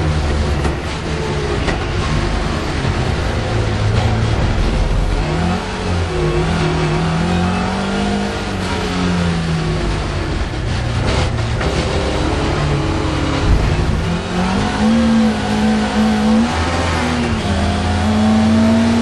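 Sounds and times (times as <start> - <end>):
rally car engine revving: 0.0 - 19.0
low thump: 13.4 - 14.2.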